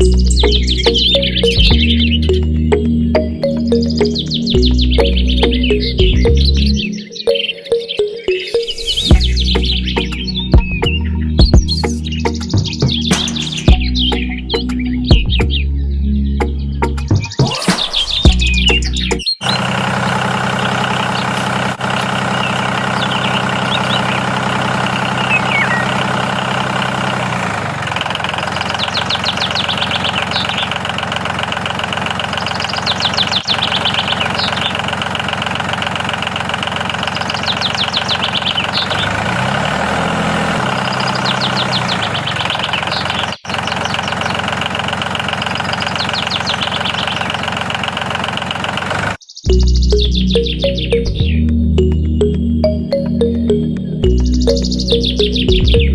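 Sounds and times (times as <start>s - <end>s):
engine idling: 0.0s - 6.9s, 18.2s - 49.2s
short bird chirps: 25.0s - 26.0s, 32.4s - 34.8s, 37.2s - 39.0s.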